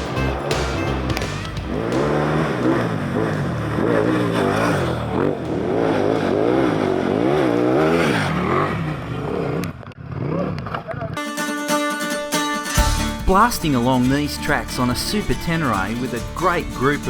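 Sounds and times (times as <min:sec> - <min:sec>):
motorcycle engine revving: 0:00.0 - 0:11.2.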